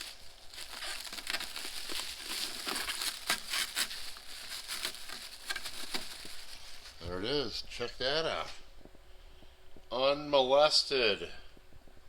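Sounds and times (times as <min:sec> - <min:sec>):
plastic film crinkling: 0:00.0 - 0:08.5.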